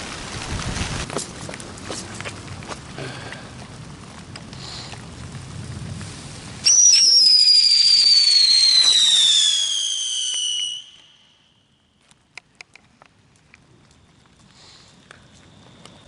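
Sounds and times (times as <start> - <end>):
whistling firework: 6.0 - 11.9.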